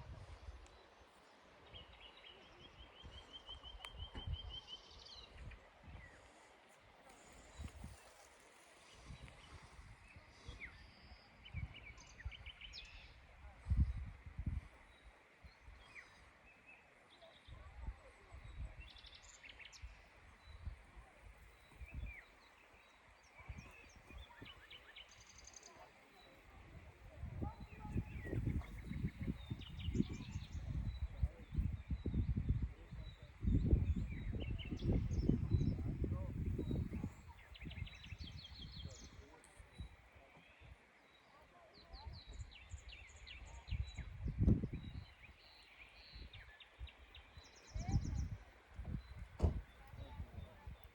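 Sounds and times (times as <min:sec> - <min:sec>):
small birds chirping: 0:18.5 - 0:50.9.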